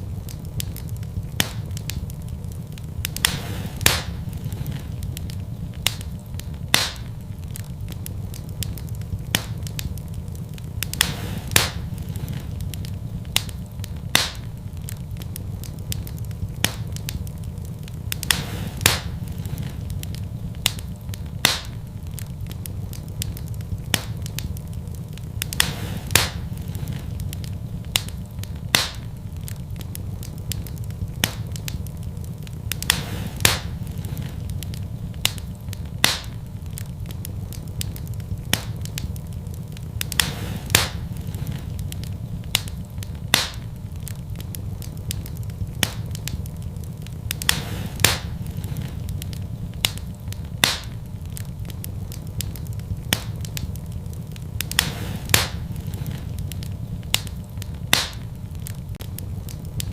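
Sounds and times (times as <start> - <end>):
low rumble of flames: 0.0 - 59.9
wood fire crackling and popping: 0.0 - 59.9.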